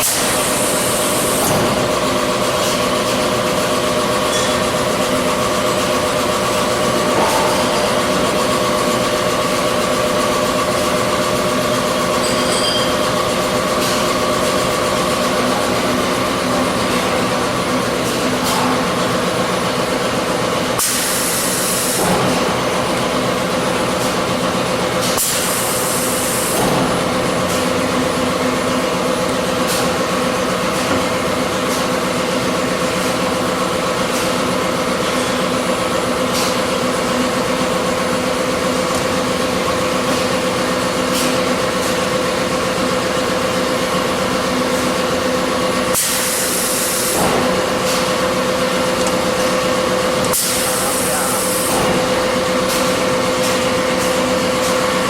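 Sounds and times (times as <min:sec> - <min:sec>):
machine hum: 0:00.0 - 0:34.0.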